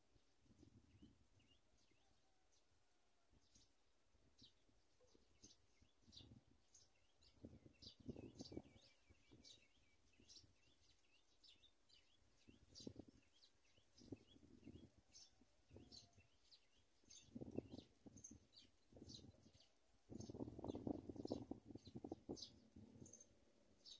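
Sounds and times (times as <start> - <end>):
bird chirping: 3.4 - 23.9.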